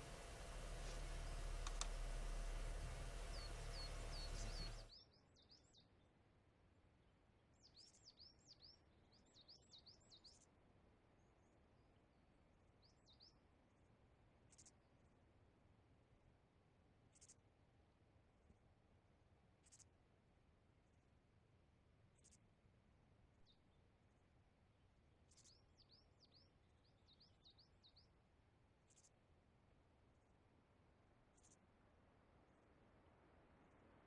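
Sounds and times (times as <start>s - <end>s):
car engine rumbling: 0.0s - 4.9s
small birds chirping: 0.0s - 5.0s.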